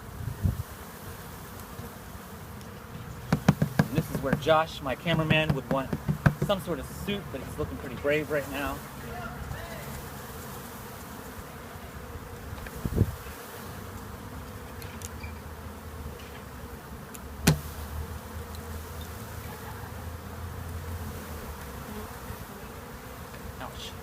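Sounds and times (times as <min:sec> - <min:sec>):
honeybees buzzing: 0:00.0 - 0:24.0
sharp knocks: 0:03.3 - 0:06.7, 0:17.4 - 0:17.7.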